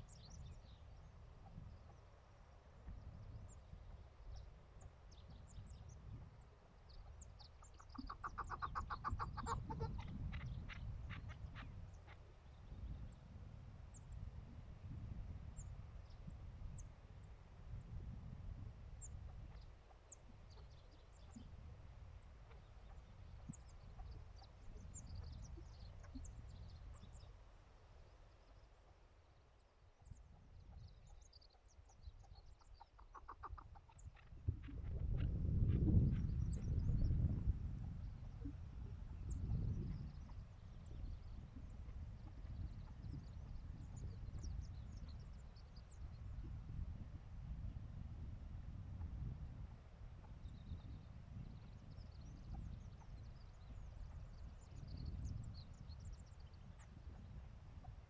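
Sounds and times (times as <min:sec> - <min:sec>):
small birds chirping: 0:00.0 - 0:13.2, 0:19.0 - 0:46.8, 0:50.4 - 0:58.0
low wind rumble: 0:00.0 - 0:27.4, 0:29.6 - 0:58.0.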